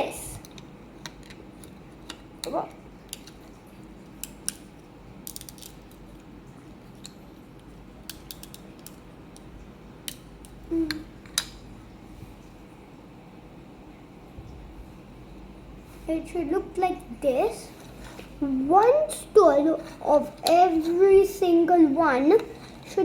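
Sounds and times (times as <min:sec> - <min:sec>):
plastic bricks clicking together: 0:08.1 - 0:09.5.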